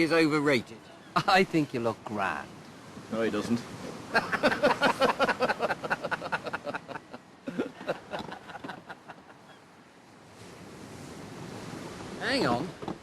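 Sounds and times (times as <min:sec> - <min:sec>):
people laughing: 0:04.1 - 0:09.6.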